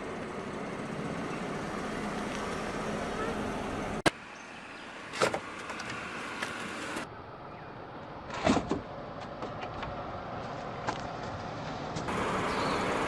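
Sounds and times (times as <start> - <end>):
car moving slowly: 0.0 - 13.0.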